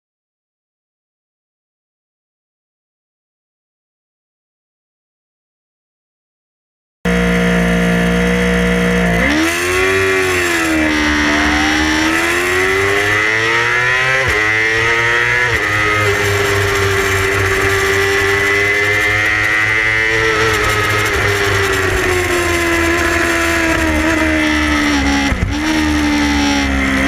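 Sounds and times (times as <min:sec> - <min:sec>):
sport bike engine revving: 0:07.1 - 0:27.0.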